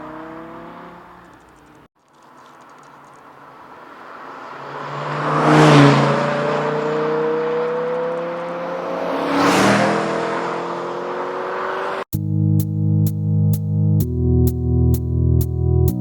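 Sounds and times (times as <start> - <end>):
sports car engine accelerating past: 0.0 - 1.4, 3.3 - 12.1.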